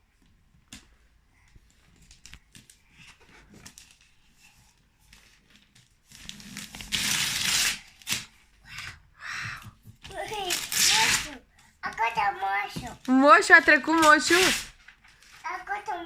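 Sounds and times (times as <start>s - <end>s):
wrapping paper tearing and crinkling: 5.1s - 8.8s, 10.1s - 16.0s.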